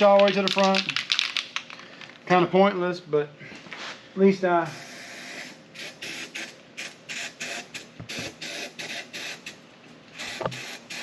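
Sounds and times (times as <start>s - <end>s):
spray gun hissing bursts: 4.7s - 9.5s, 10.2s - 11.0s.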